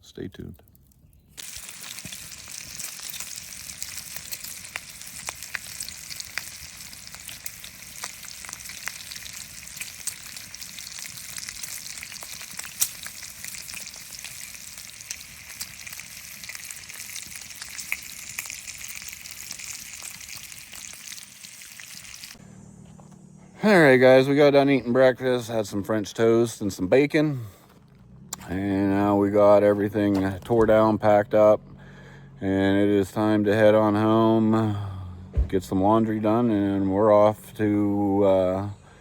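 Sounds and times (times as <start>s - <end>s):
food sizzling in a frying pan: 1.4s - 22.4s.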